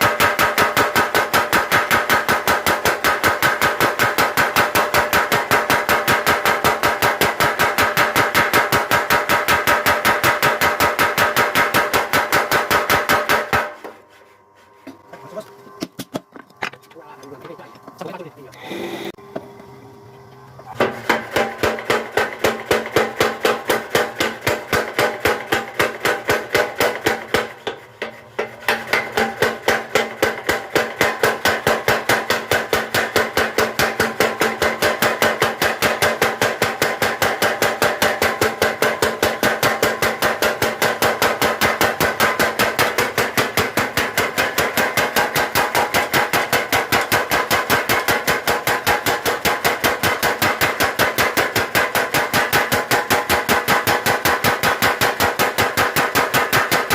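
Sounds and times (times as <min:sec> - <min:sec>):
power hammer pounding steel: 0:00.0 - 0:14.0, 0:20.8 - 0:56.9.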